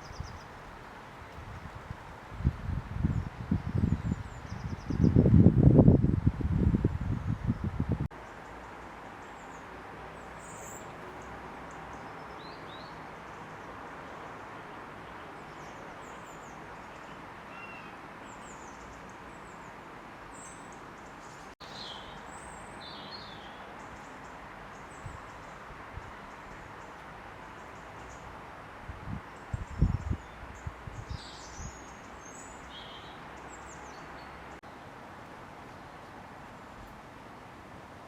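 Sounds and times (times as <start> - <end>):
small birds chirping: 0.0 - 1.9, 7.2 - 28.4, 29.2 - 34.9
outdoor background hiss: 0.0 - 38.0.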